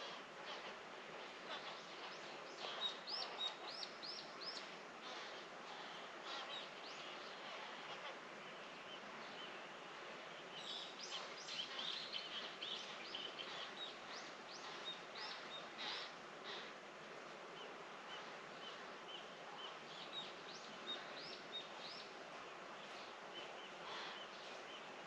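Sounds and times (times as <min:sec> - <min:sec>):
songbirds chirping: 0:00.0 - 0:25.0
steady background noise: 0:00.0 - 0:25.0.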